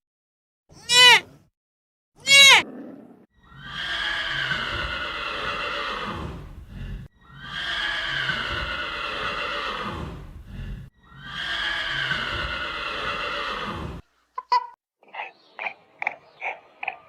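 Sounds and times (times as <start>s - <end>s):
horse neighing: 2.2s - 6.5s, 7.2s - 10.3s, 11.0s - 14.0s.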